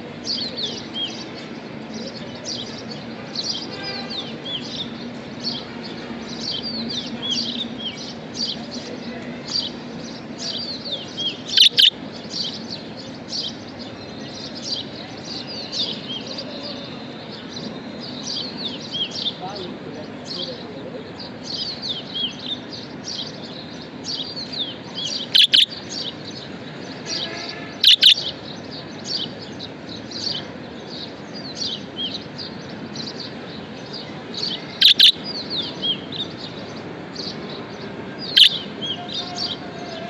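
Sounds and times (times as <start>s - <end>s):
sharp bird calls: 9.5s - 12.8s, 21.4s - 29.4s, 30.1s - 40.0s
budgerigars chirping: 10.1s - 12.8s, 24.0s - 26.2s, 27.1s - 28.4s, 34.0s - 37.4s, 38.2s - 39.6s.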